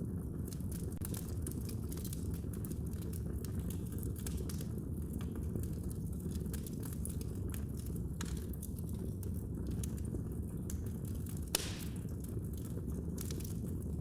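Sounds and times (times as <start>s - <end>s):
fire crackling: 0.0s - 14.0s
low rumble of flames: 0.0s - 14.0s
loud fire pop: 11.5s - 12.1s.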